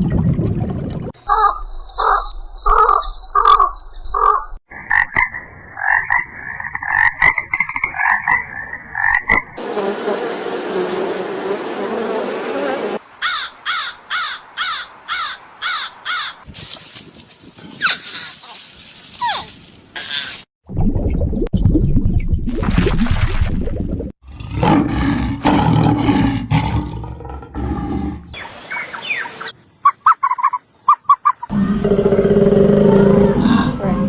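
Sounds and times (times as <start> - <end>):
animal hiss: 18.0 - 20.5
pulsing croak-like animal call: 29.8 - 34.0.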